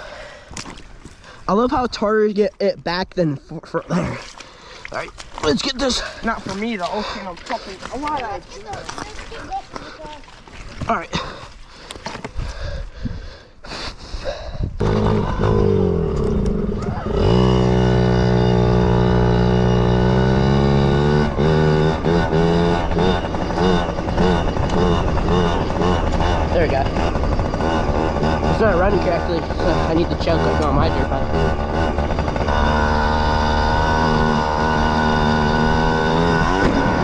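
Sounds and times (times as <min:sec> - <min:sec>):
two-stroke engine revving: 0:14.8 - 0:37.0
person speaking: 0:28.2 - 0:31.5.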